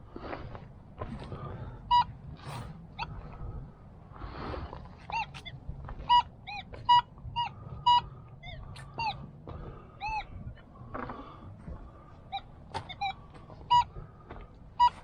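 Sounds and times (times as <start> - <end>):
low background rumble: 0.0 - 15.0
geese honking: 1.9 - 3.4, 5.1 - 10.4, 12.2 - 14.1, 14.8 - 15.0.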